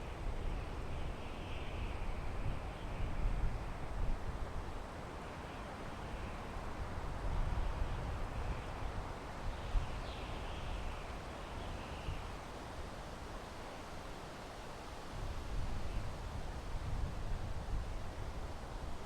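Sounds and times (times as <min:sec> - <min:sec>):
wind through pine trees: 0:00.0 - 0:19.0.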